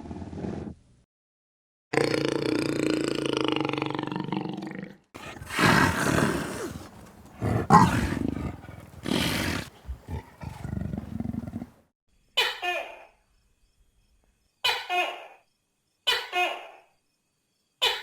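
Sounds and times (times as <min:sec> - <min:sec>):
large animal long call: 0:05.2 - 0:11.7
large animal rough roars: 0:05.2 - 0:11.7.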